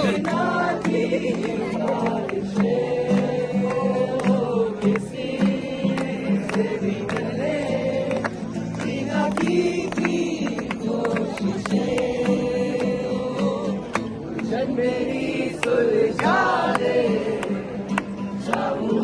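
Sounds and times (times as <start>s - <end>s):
voices singing slow song: 0.0s - 8.1s.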